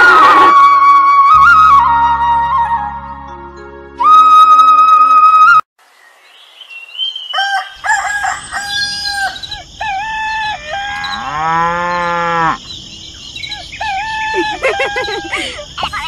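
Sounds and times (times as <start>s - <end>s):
rooster crowing: 7.3s - 9.5s
cow mooing: 11.1s - 12.6s.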